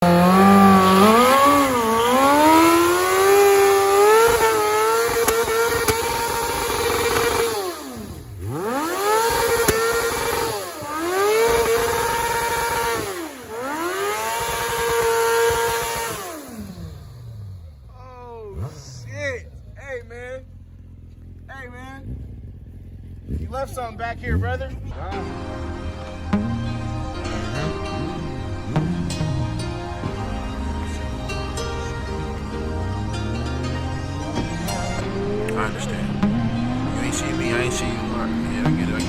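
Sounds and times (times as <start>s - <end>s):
motorcycle engine revving hard: 0.0s - 39.0s.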